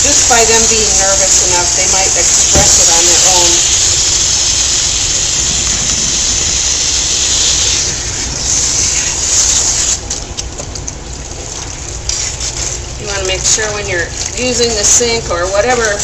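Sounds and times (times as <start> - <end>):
water running from sink sprayer: 0.0 - 16.0.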